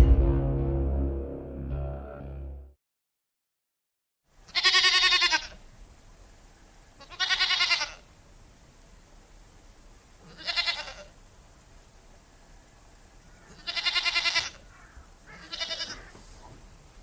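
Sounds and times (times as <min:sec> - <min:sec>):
farm animal bleating: 0:04.4 - 0:05.6, 0:07.0 - 0:08.1, 0:10.2 - 0:11.2, 0:13.5 - 0:16.2.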